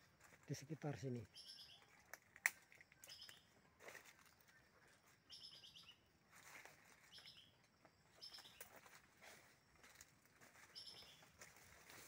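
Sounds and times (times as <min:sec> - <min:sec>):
small bird singing: 0:01.0 - 0:06.2, 0:06.8 - 0:09.4, 0:10.6 - 0:11.9
leaves rustling: 0:01.8 - 0:05.2, 0:06.3 - 0:07.4, 0:08.2 - 0:12.0.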